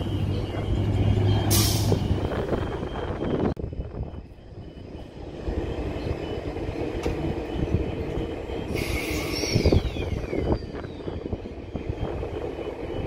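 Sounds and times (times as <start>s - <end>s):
electric train rumbling: 0.0s - 13.0s
high squeal falling in pitch: 8.7s - 11.3s.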